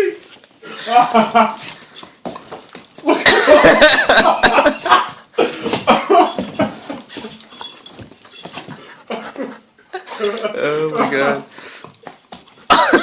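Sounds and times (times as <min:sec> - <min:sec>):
person laughing: 0:03.0 - 0:07.1.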